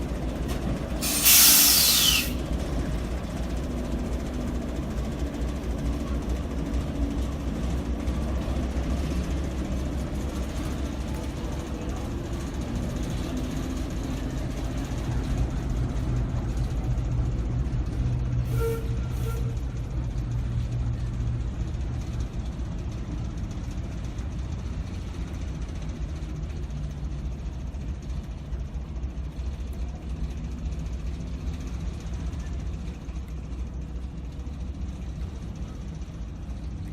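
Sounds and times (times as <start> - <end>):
locomotive engine drone: 0.0 - 36.9
short high tones: 1.0 - 2.4.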